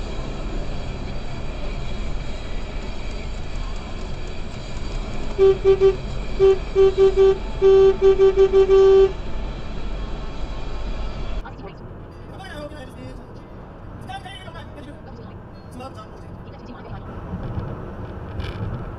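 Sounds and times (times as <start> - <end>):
road noise from moving vehicle: 0.0 - 18.9
car horn honking: 5.3 - 9.2.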